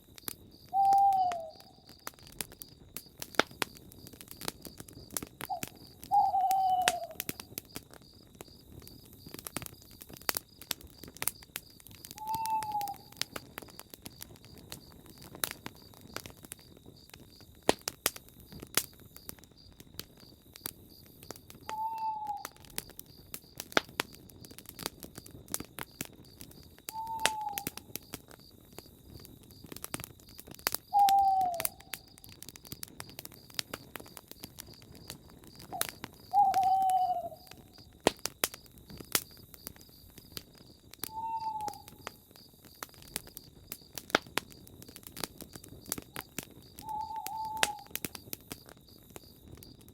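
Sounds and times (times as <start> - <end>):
campfire crackling and popping: 0.0 - 49.9
owl hooting: 0.7 - 1.7, 5.5 - 7.4, 12.2 - 13.2, 21.7 - 22.6, 26.9 - 27.7, 30.9 - 31.9, 35.7 - 37.7, 41.1 - 42.0, 46.8 - 47.9.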